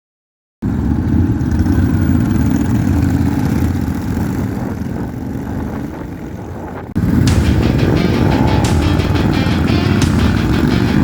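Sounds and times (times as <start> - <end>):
motorcycle engine idling: 7.0 - 11.0.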